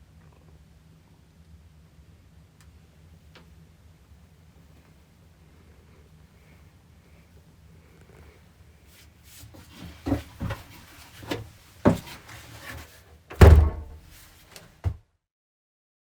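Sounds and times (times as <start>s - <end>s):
dull knocks and thumps: 9.6s - 14.1s.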